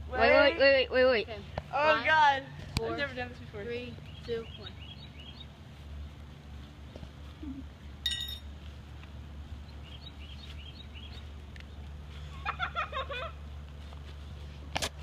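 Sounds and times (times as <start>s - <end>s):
small birds chirping: 3.1s - 8.2s, 9.4s - 12.2s
sharp high clink: 8.1s - 8.5s.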